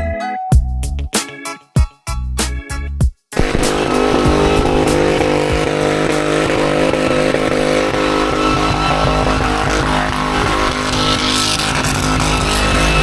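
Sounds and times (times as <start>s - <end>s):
car engine revving high: 3.4s - 13.0s.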